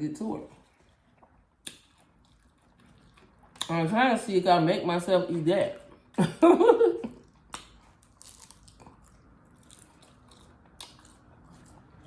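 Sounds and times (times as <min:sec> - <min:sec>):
chewing crunchy taco: 0:00.4 - 0:03.9, 0:07.1 - 0:12.0.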